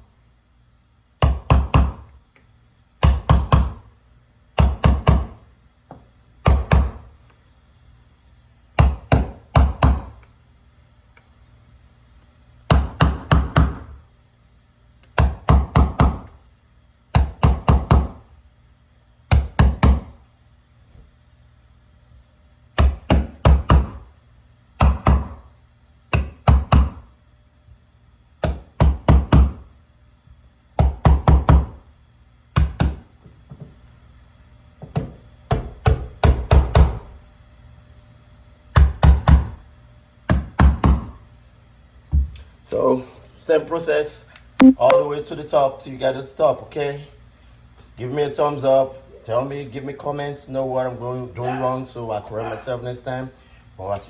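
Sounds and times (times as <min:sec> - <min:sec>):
hammer knocking on stairs: 0:01.2 - 0:02.0, 0:04.6 - 0:05.3.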